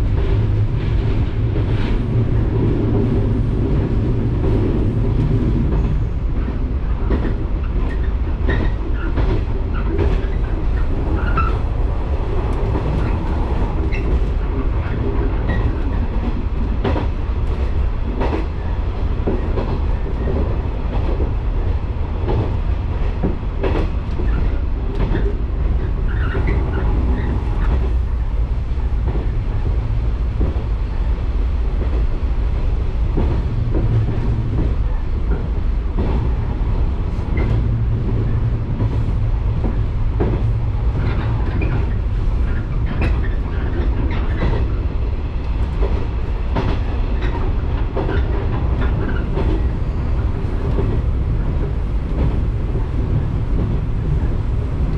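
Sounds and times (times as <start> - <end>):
train wheels rumbling on rail: 0.0 - 54.9
track clicks and knocks: 37.3 - 44.8.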